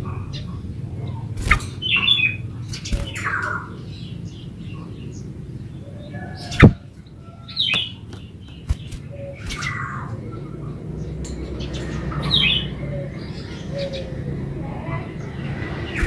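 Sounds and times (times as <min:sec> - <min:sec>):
bird chattering calls: 0:00.0 - 0:05.2, 0:07.6 - 0:10.6.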